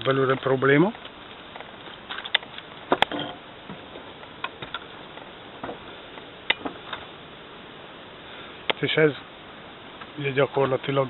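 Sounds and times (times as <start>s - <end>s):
footsteps on wooden deck: 5.6s - 6.8s.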